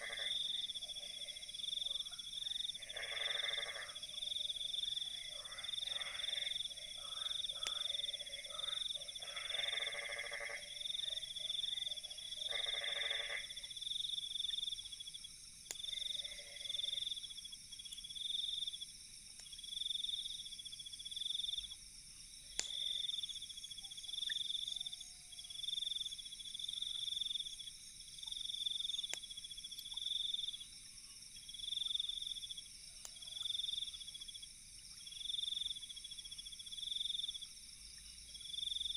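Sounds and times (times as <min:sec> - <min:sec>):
night insects trilling: 0:00.0 - 0:38.9
campfire crackles: 0:13.8 - 0:16.1, 0:17.1 - 0:19.7, 0:22.4 - 0:23.8, 0:26.2 - 0:30.7.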